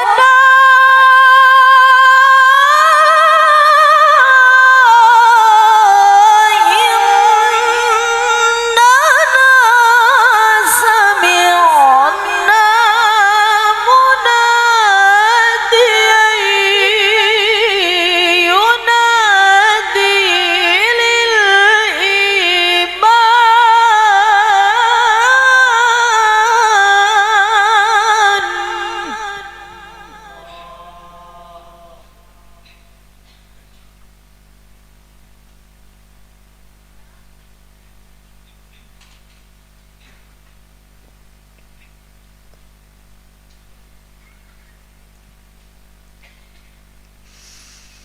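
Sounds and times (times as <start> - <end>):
woman chanting melodically: 0.0 - 33.4.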